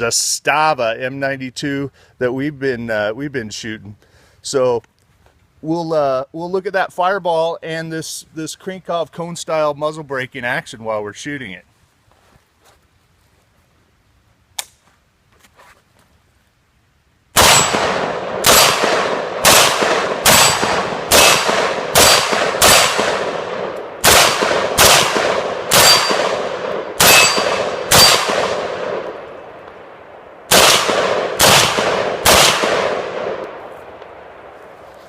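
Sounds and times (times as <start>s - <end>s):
pistol shots echoing: 17.4s - 29.4s, 30.5s - 34.5s.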